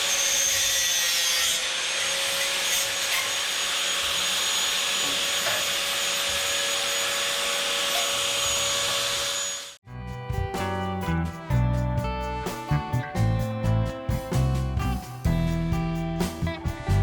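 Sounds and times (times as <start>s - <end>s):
angle grinder cutting steel: 0.0s - 9.8s.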